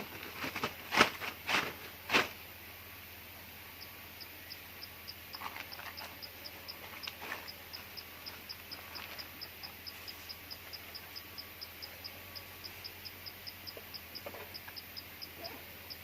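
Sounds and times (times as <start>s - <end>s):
cricket chirping: 3.5s - 16.0s.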